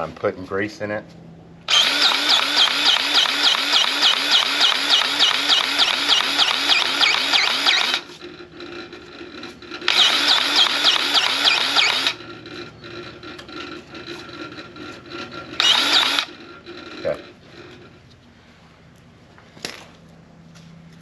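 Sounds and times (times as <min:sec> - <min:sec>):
grease gun pumping: 0:01.7 - 0:08.1, 0:09.9 - 0:12.2, 0:15.6 - 0:16.3.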